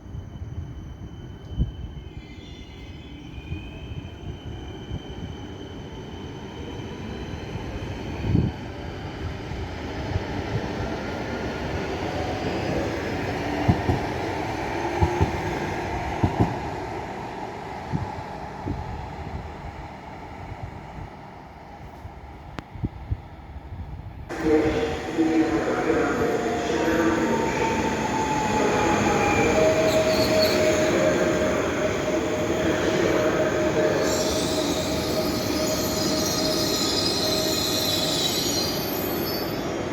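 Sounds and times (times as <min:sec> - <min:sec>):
train rumbling: 0:07.5 - 0:39.2.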